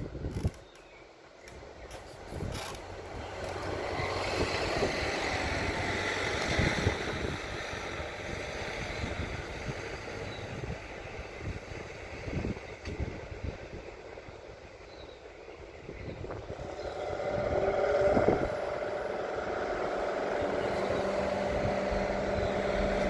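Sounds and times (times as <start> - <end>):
motor vehicle rumble: 0.0 - 23.0.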